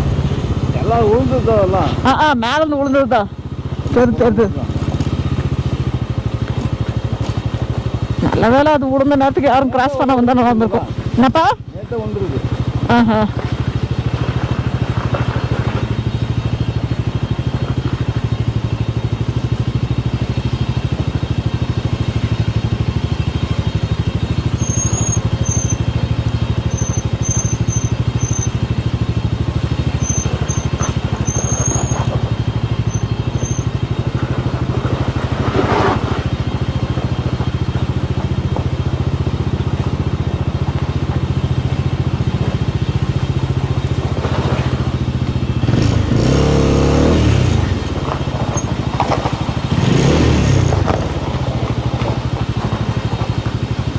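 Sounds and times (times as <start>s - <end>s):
motorcycle engine running: 0.0s - 53.9s
short high chirps: 24.6s - 25.8s, 26.7s - 28.6s.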